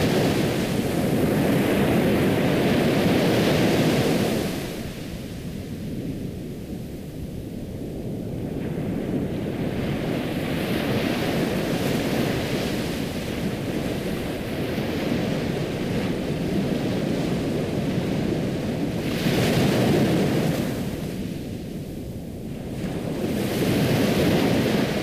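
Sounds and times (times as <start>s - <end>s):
ocean waves washing in: 8.1s - 25.0s.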